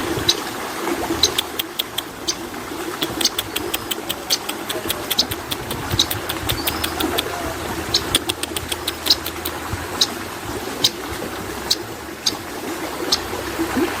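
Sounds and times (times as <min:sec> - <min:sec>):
bird chirping sharply: 0:05.9 - 0:07.1, 0:08.8 - 0:09.4.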